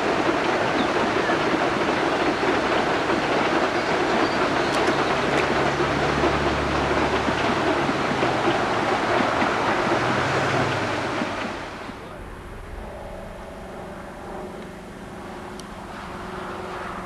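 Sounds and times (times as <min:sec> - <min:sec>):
train cars clattering across a bridge: 0:00.0 - 0:12.2.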